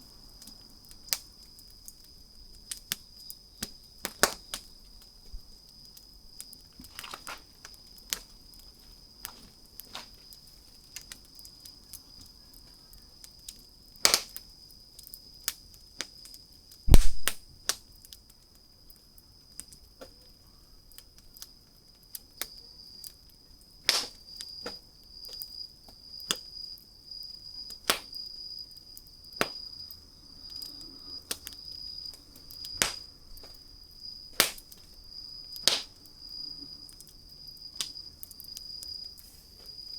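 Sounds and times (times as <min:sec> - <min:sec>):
campfire crackling and popping: 0:00.2 - 0:20.3, 0:20.9 - 0:39.9
dull low thump: 0:16.9 - 0:17.4.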